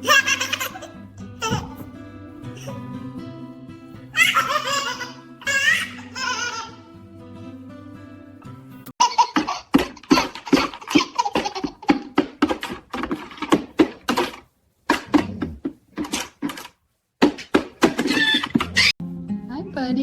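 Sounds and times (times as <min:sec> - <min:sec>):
baby giggling: 0:00.0 - 0:01.9, 0:02.5 - 0:02.9, 0:04.1 - 0:06.9, 0:09.0 - 0:12.6, 0:17.9 - 0:19.0.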